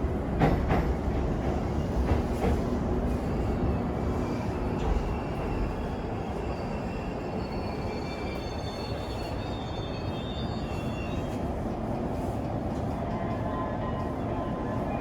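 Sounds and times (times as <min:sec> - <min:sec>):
train rumble: 0:00.0 - 0:06.5.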